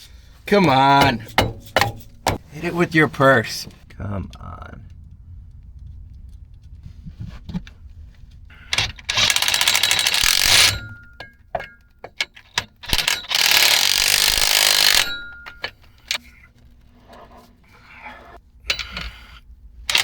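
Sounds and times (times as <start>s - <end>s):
metallic knocks and clicks: 0.5s - 2.8s, 8.7s - 16.2s
power tool running: 9.1s - 10.8s.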